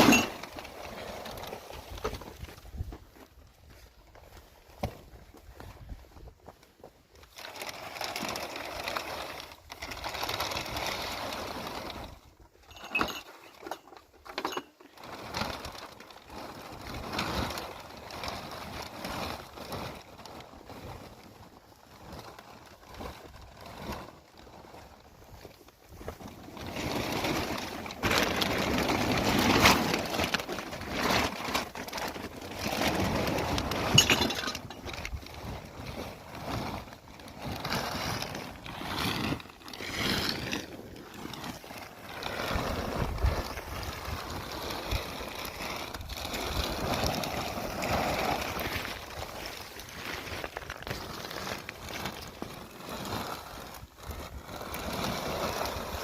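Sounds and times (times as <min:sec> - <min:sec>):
tools scraping and knocking stones: 0:00.0 - 0:02.9, 0:07.2 - 0:15.7, 0:25.7 - 0:53.2.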